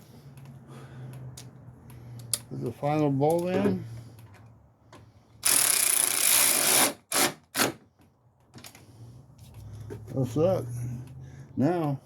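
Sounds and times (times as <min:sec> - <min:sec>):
power wrench running: 0:05.4 - 0:07.8.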